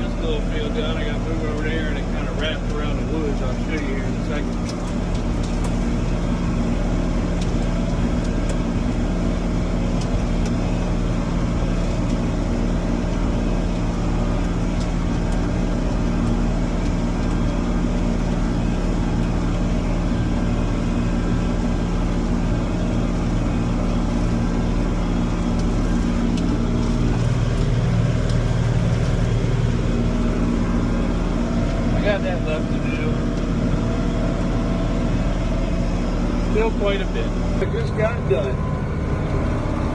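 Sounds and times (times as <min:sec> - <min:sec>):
tractor engine mowing: 0:00.0 - 0:39.9.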